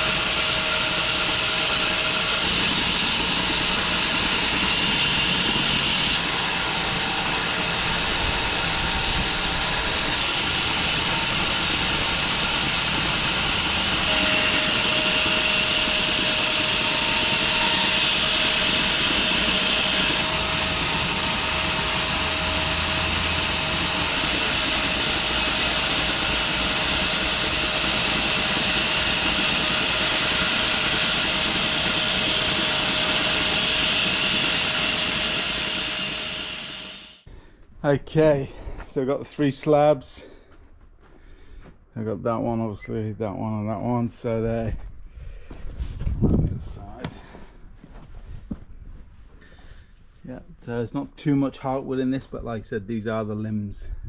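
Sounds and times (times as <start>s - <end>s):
bandsaw sawmill cutting log: 0.0s - 37.3s.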